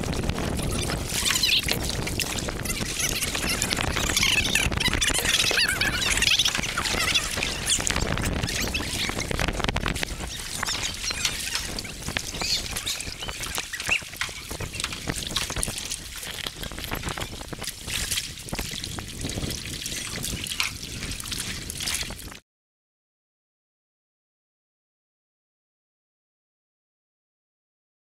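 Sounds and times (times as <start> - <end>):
river water splashing: 0.0 - 22.3.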